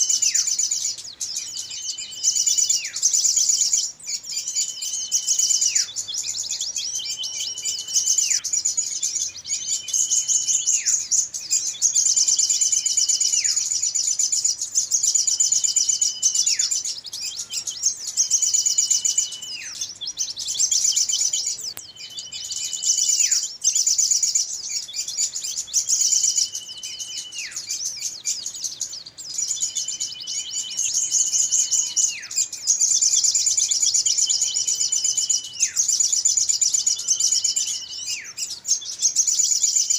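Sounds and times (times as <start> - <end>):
small birds twittering chorus: 0.0 - 39.9.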